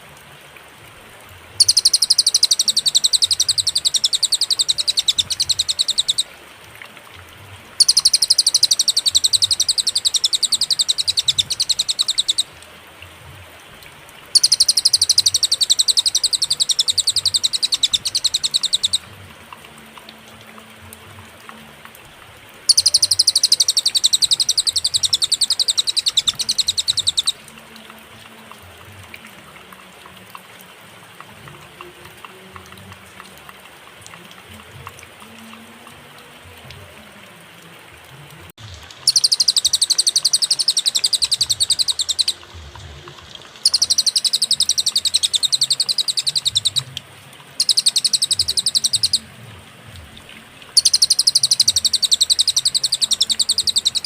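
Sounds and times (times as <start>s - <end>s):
bird trilling high notes: 1.6s - 6.3s, 7.8s - 12.5s, 14.4s - 19.0s, 22.7s - 27.4s, 39.1s - 42.4s, 43.6s - 46.9s, 47.6s - 49.3s, 50.8s - 54.0s.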